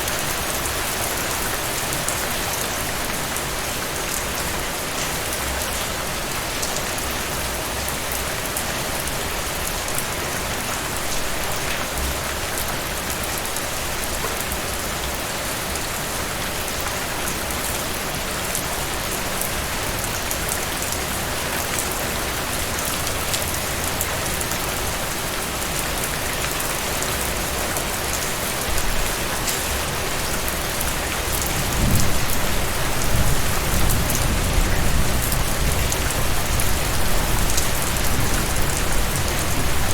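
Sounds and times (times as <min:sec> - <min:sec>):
heavy rain falling: 0:00.0 - 0:39.9
thunder rumble: 0:31.5 - 0:39.9.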